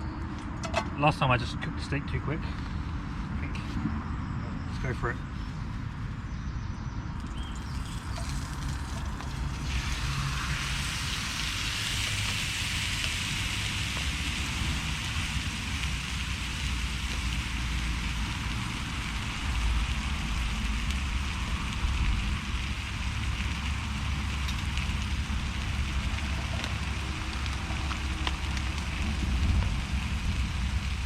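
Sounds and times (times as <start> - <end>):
low rumble of road traffic: 0.0 - 31.0
steak sizzling in a hot pan: 7.5 - 31.0.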